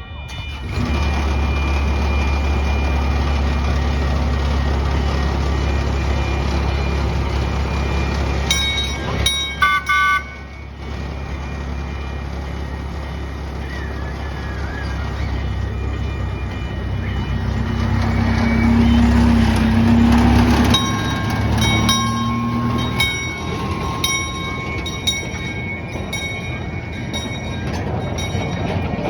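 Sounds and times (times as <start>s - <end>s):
miniature train rumbling: 0.0s - 29.0s
train horn toots: 9.5s - 10.6s.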